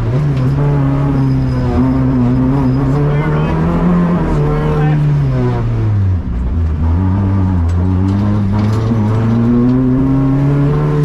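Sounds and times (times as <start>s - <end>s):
car engine under load: 0.0s - 11.0s.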